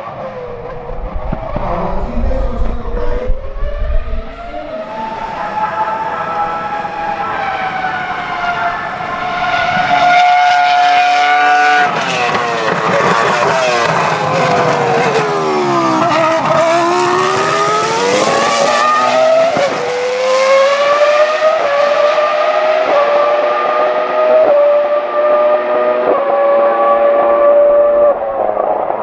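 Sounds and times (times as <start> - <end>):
quick gear upshifts: 4.8 - 19.3
racing car engine at high revs: 4.8 - 28.0.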